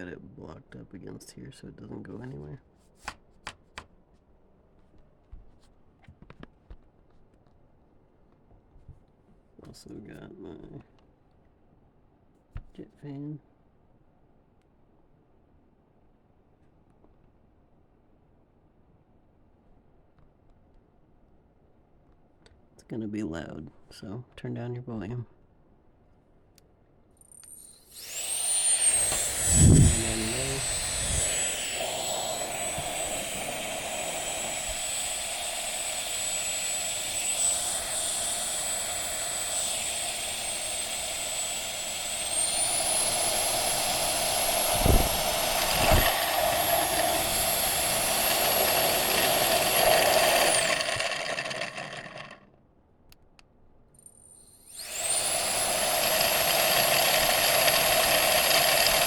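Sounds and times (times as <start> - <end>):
electric jet fan whine: 27.5 - 52.5, 54.7 - 59.0.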